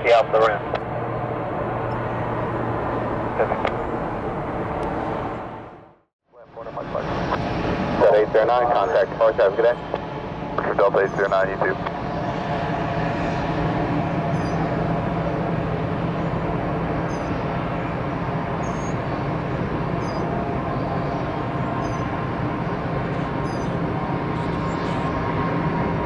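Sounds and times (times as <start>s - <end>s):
jet engines running: 0.0s - 6.0s, 6.6s - 26.0s
faint high bird chirps: 14.3s - 14.7s, 17.0s - 17.4s, 18.6s - 19.1s, 20.0s - 20.3s, 21.6s - 22.2s, 23.1s - 23.8s.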